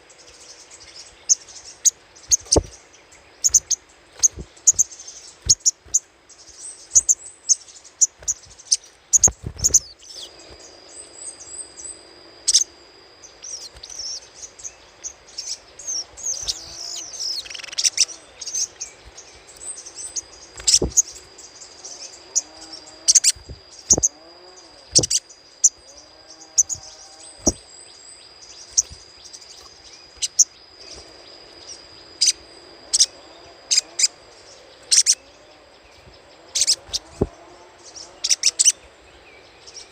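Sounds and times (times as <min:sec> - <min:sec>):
sunbird chips and chattering: 0:00.4 - 0:02.8, 0:03.4 - 0:10.6, 0:13.4 - 0:25.8, 0:28.4 - 0:31.0, 0:34.8 - 0:35.2, 0:36.5 - 0:37.4.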